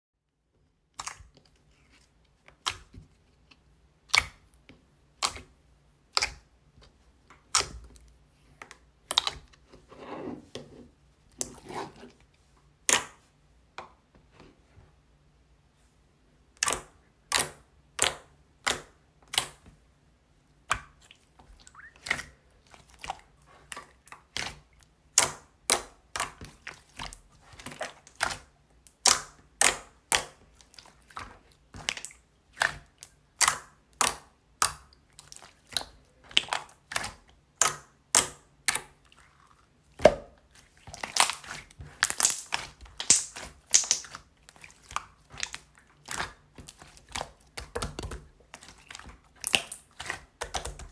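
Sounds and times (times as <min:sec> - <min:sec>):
slime squished by hand: 0:25.2 - 0:50.9.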